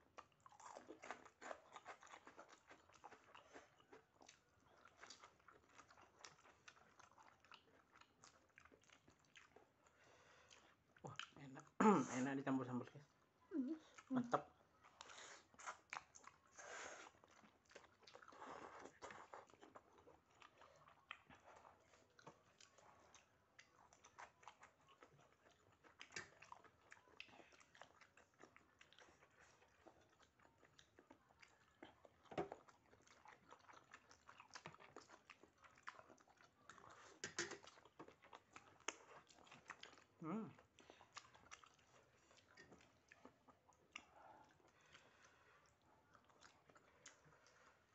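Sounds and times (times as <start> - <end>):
mouth chewing noodles: 0.0 - 47.9.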